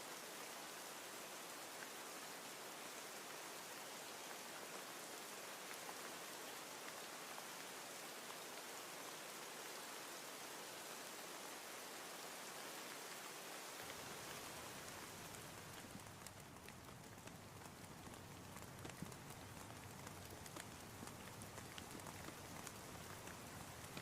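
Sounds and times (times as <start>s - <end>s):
rain pattering: 0.1s - 24.0s
raindrop ticks: 13.8s - 24.0s.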